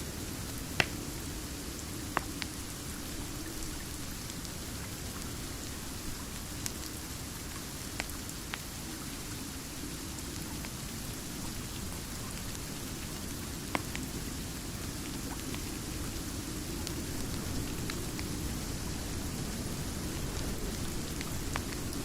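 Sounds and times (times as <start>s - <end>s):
steady rain: 0.0s - 22.0s.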